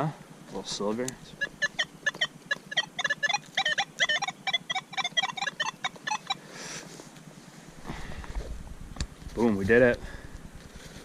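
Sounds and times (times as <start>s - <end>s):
metal detector pinpointer beeping: 1.2s - 6.4s
soil rustling: 6.8s - 11.0s.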